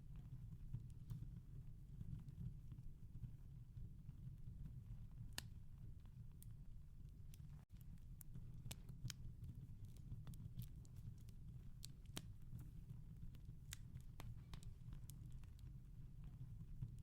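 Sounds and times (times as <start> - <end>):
wood fire crackling: 5.2 - 17.0.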